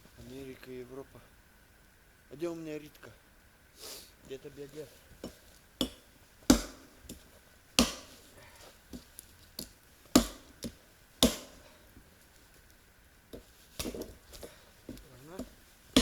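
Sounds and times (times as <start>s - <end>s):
firewood being struck: 5.2s - 11.8s, 13.3s - 16.0s.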